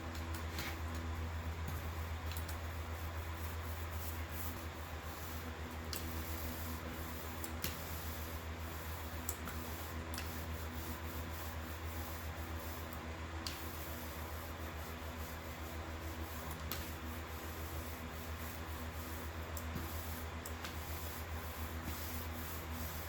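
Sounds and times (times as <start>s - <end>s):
low electrical hum: 0.0s - 23.0s
roller rubbing and squishing: 13.5s - 23.0s.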